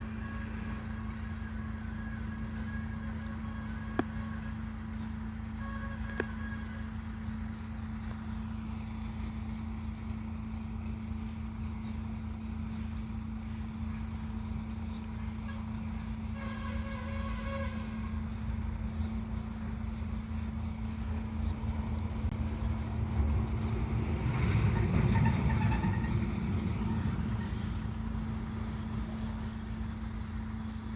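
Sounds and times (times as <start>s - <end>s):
low hum and rumble: 0.0s - 30.9s
sparrow chirping: 0.2s - 7.7s, 8.3s - 10.2s, 11.0s - 17.7s, 18.9s - 19.3s, 21.4s - 21.8s, 23.6s - 23.9s, 26.6s - 27.7s, 29.1s - 29.8s.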